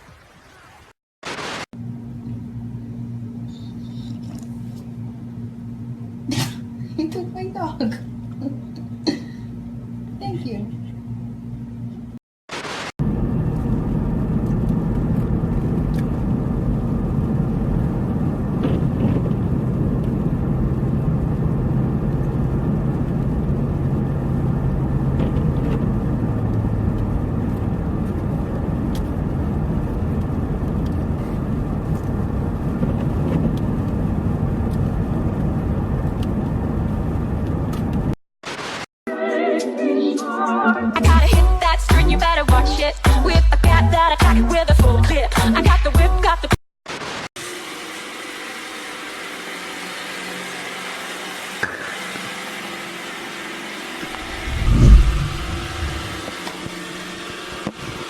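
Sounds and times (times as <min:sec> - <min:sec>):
car rumbling in motion: 0:13.0 - 0:38.0, 0:54.1 - 0:56.3.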